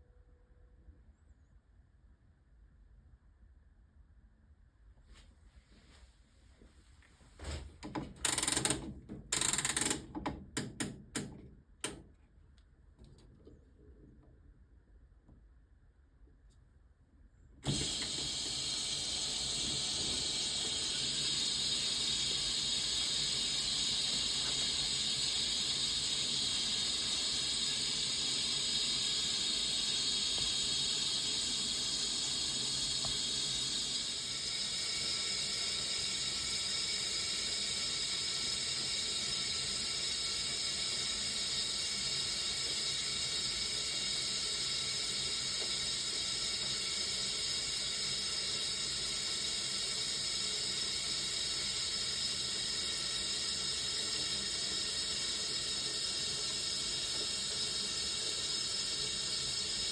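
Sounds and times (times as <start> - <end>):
washing machine filling with water: 17.6 - 59.9.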